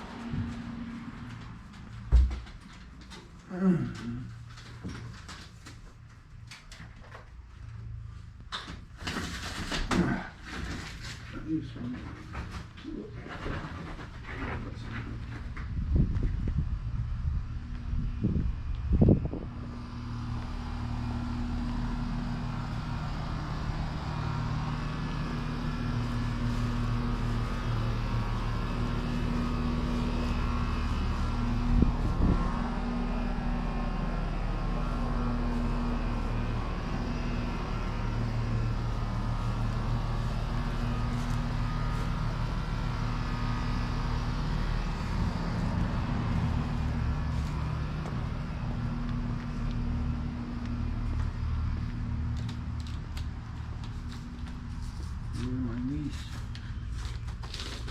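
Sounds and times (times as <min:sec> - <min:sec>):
engine humming: 0:00.0 - 0:57.9.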